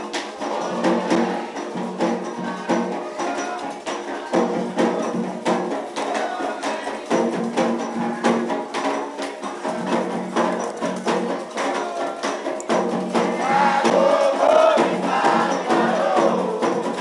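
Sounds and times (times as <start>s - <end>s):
clacking percussion strikes: 0.0s - 17.0s
hand drums beating: 0.0s - 17.0s
held sung notes: 9.4s - 17.0s.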